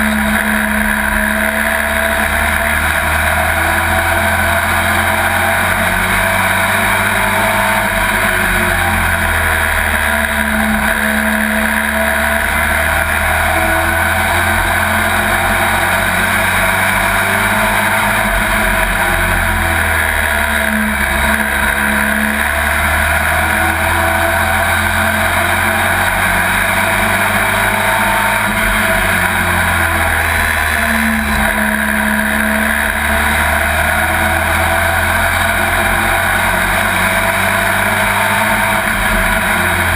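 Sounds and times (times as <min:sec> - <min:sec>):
truck engine running hard: 0:00.0 - 0:39.9.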